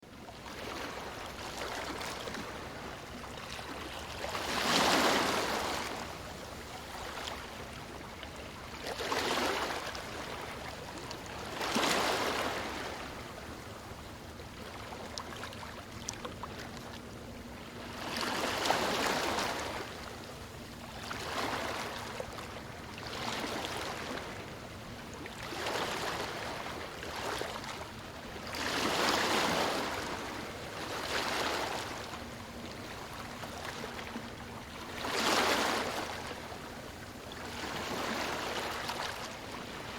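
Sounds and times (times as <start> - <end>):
ocean waves breaking: 3.5 - 6.2, 17.7 - 20.1, 28.5 - 39.9.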